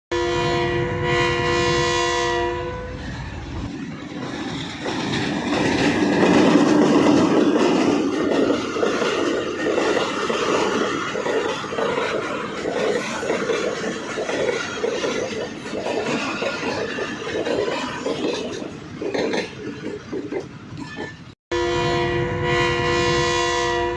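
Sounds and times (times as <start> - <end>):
train horn blast: 0.1 - 3.2, 21.5 - 23.9
train wheels clattering over rail joints: 3.0 - 21.4.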